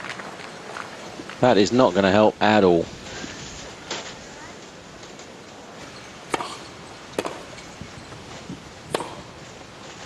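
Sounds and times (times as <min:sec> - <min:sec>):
steady background hiss: 0:00.0 - 0:10.0
tennis racket hitting ball: 0:06.3 - 0:07.6, 0:08.9 - 0:09.4.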